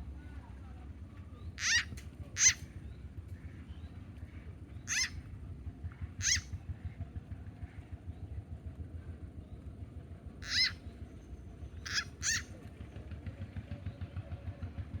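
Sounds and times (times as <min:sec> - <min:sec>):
frog distress screams: 0:01.6 - 0:01.8, 0:02.4 - 0:02.6, 0:04.9 - 0:05.1, 0:06.2 - 0:06.4, 0:10.4 - 0:10.7, 0:11.9 - 0:12.4.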